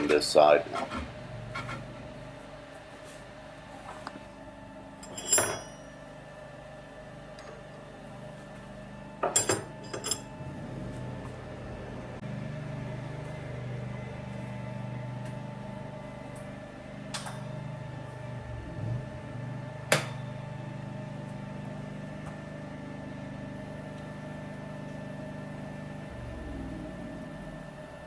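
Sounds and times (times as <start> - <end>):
metal tools clinking: 5.0 - 5.9, 9.3 - 10.3
lathe humming: 9.7 - 28.0.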